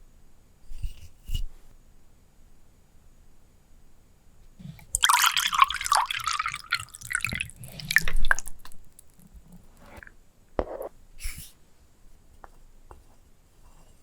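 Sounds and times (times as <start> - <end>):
liquid dripping and gurgling: 4.7 - 10.1.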